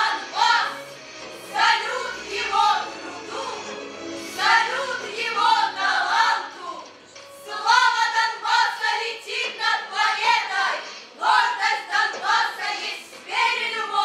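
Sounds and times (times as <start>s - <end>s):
choir singing with backing music: 0.0s - 14.0s.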